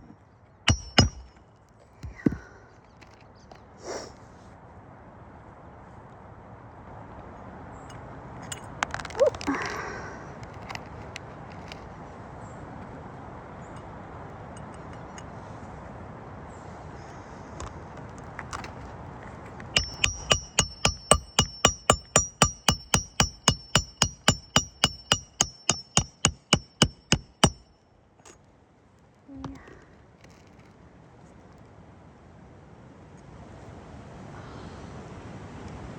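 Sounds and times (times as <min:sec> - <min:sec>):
hammer striking metal: 0:00.7 - 0:01.4, 0:19.8 - 0:27.7.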